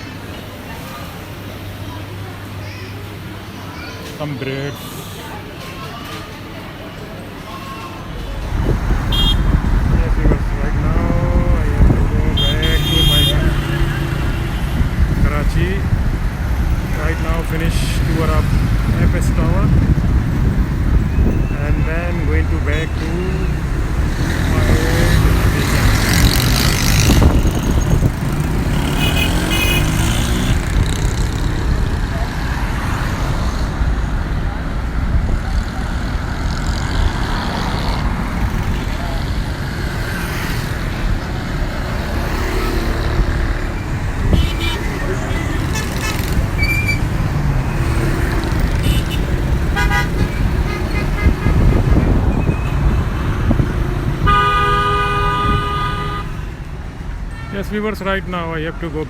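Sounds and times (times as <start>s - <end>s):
road traffic rumbling: 0.0s - 59.0s
vehicle engines running: 0.0s - 59.0s
car horns honking: 8.8s - 10.0s, 11.3s - 14.8s, 26.6s - 31.0s, 44.2s - 56.7s.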